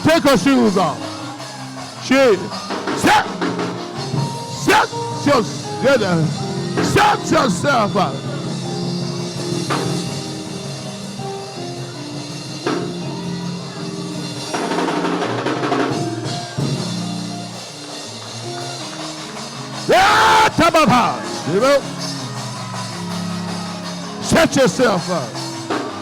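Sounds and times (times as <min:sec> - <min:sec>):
person preaching: 0:00.0 - 0:01.0, 0:02.0 - 0:03.4, 0:04.5 - 0:08.2, 0:19.9 - 0:22.0, 0:24.2 - 0:25.3
drum kit cymbals and hits: 0:08.0 - 0:26.0.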